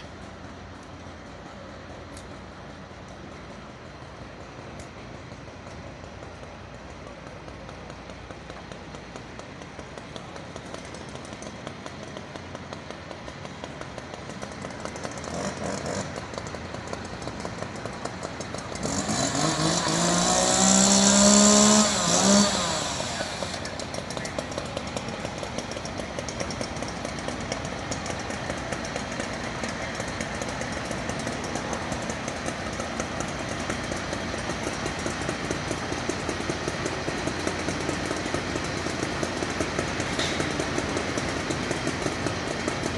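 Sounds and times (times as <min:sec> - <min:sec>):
engine and traffic: 0:00.0 - 0:42.9
motor vehicle passing by: 0:00.0 - 0:42.9.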